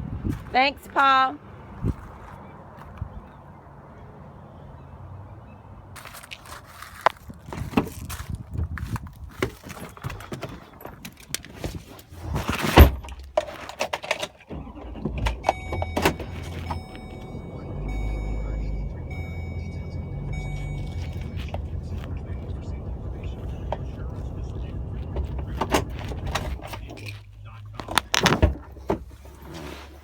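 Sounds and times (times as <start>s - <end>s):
rustling: 20.6s - 30.0s.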